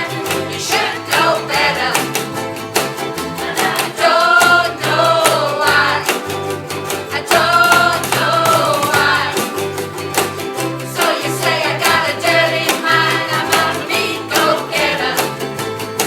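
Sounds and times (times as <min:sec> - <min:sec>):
voices singing rock song: 0:00.0 - 0:02.2, 0:03.4 - 0:06.2, 0:07.1 - 0:09.6, 0:11.0 - 0:15.3
steady drum beat: 0:00.0 - 0:15.3.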